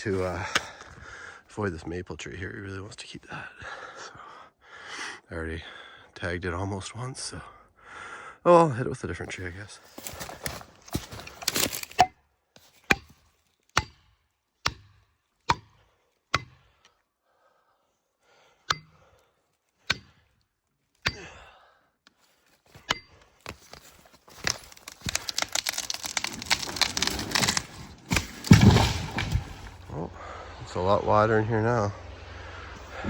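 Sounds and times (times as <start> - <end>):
wood cracking: 0.0 - 1.0, 9.7 - 13.2, 22.6 - 29.9
branches breaking in crash: 9.9 - 12.1, 23.5 - 29.9.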